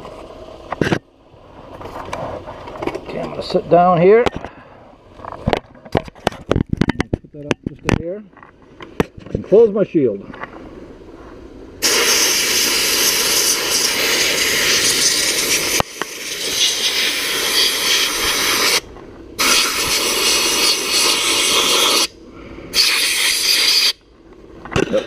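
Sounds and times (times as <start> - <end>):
sandblast gun hissing: 11.8 - 24.0.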